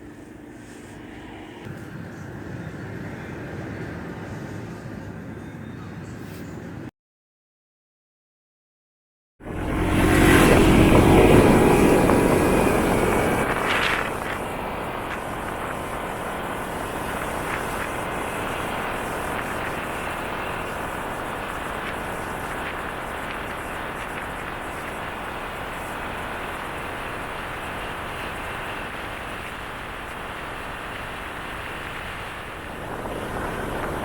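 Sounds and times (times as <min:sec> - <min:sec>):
motorcycle engine: 0:09.4 - 0:34.0
wind noise: 0:09.4 - 0:34.0.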